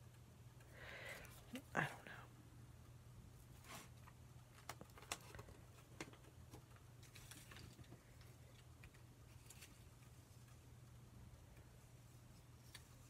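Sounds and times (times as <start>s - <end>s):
low steady hum: 0.0s - 13.0s
paper rustling: 3.5s - 10.6s.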